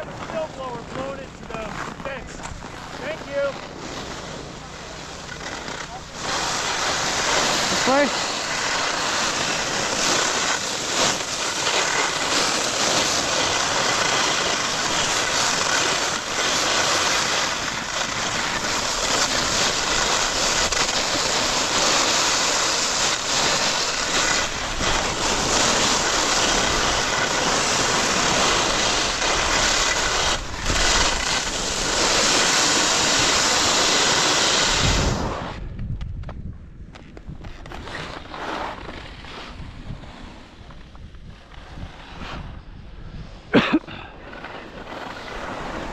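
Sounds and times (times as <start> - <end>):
skis scraping snow: 0.0 - 35.6, 37.0 - 45.9
wind on microphone: 24.0 - 38.2, 38.8 - 43.6.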